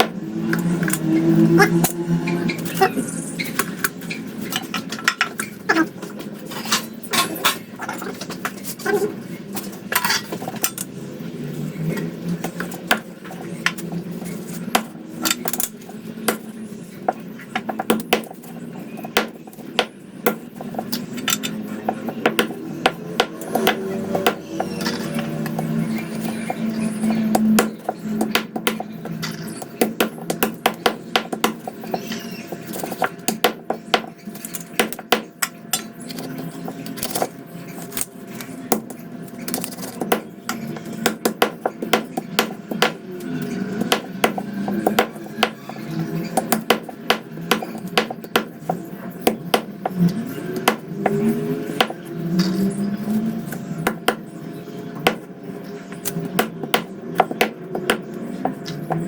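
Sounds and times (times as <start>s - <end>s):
knife chopping on a board: 21.9s - 24.8s, 26.2s - 28.8s, 43.8s - 45.8s, 46.4s - 50.0s.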